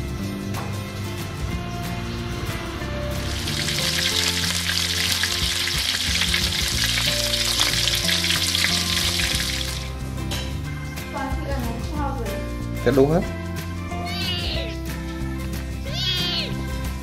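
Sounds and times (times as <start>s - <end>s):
chicken wings sizzling in oil: 3.1s - 10.1s.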